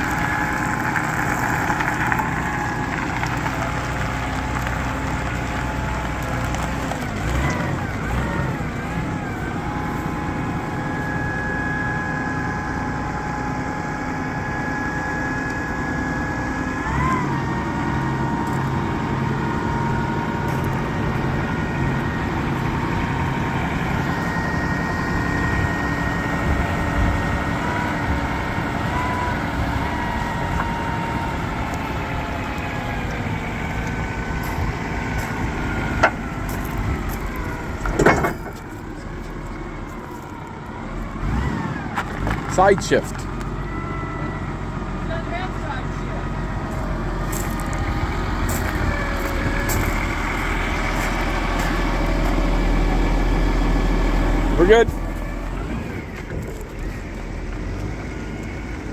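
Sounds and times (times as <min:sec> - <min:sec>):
diesel forklift running: 0:00.0 - 0:58.9
hydraulic whine: 0:07.1 - 0:44.9.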